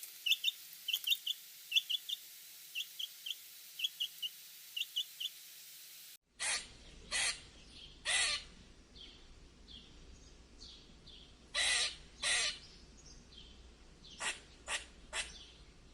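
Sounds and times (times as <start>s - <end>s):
harsh raspy animal calls: 6.4s - 7.4s, 8.0s - 8.5s, 11.6s - 12.6s.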